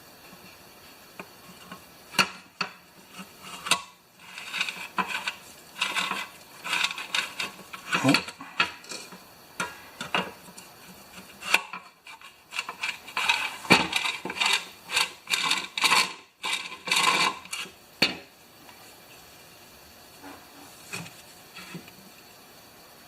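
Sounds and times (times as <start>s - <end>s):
metal parts clinking and scraping: 3.2s - 9.2s, 11.4s - 17.7s.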